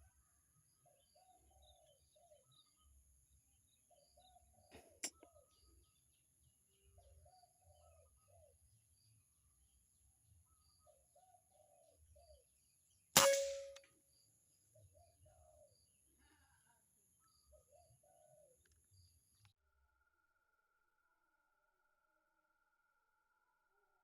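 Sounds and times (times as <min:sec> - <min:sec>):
air rifle shot: 0:13.2 - 0:13.8
metallic ring: 0:13.2 - 0:13.8.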